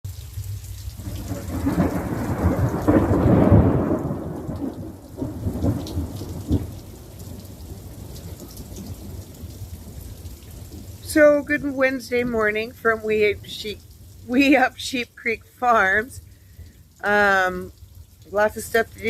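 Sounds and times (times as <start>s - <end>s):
steady rain: 0.0s - 19.0s
thunder cracks: 1.0s - 8.2s
thunder rumbling: 1.0s - 13.7s.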